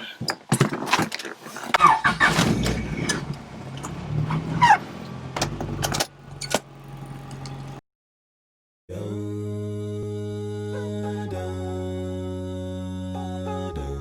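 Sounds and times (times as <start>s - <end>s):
short squeaks: 1.8s - 4.8s
car engine idling: 2.0s - 7.8s.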